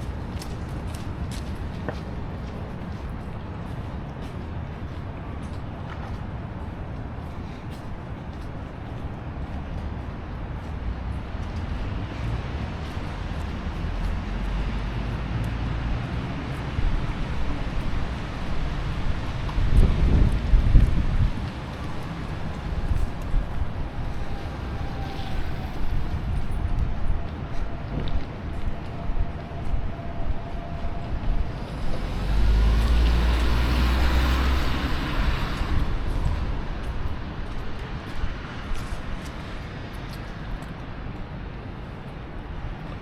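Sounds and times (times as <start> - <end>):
vehicle engine rumble: 10.6 - 41.0
wind buffeting microphone: 15.6 - 43.0
tyre hiss on wet street: 31.6 - 40.8.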